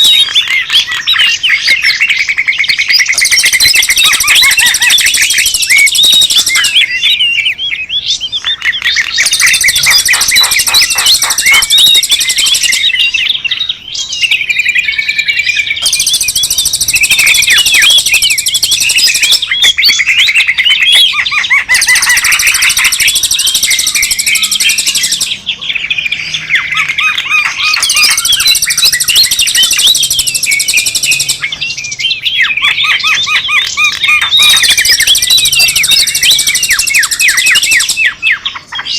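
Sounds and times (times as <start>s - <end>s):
many small birds chirping: 0.0s - 38.9s.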